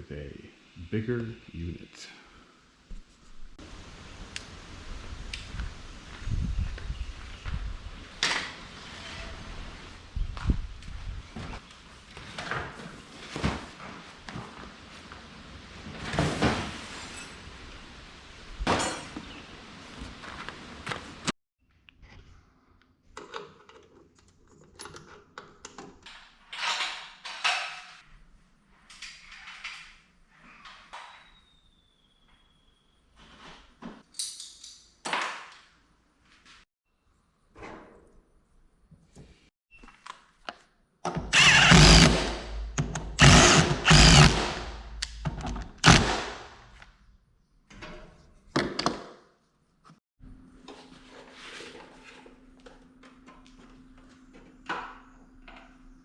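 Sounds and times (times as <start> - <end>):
tools and metal hardware clinking: 34.1 - 35.0
power drill running: 41.3 - 46.5.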